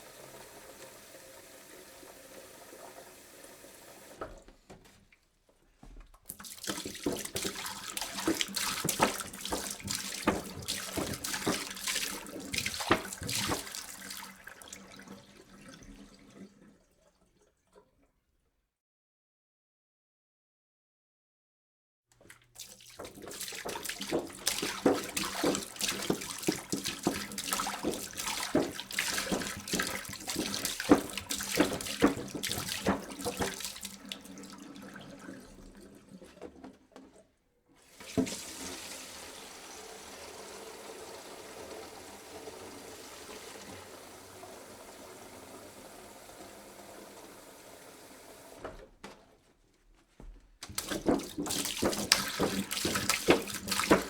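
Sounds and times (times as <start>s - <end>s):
water pouring into a jug: 0.0s - 4.4s, 6.3s - 18.0s, 22.2s - 37.2s, 37.8s - 48.6s, 50.7s - 54.0s.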